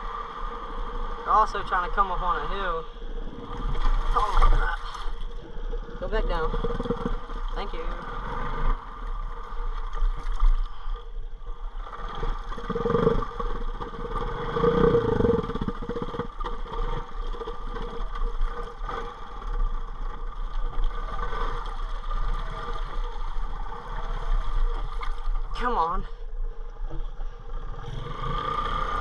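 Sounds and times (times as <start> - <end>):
motorbike engine running: 6.0 - 8.7, 12.1 - 24.4.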